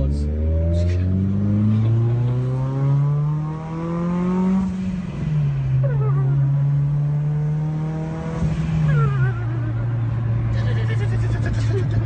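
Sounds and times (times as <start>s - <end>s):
car engine revving in cabin: 0.0s - 12.0s.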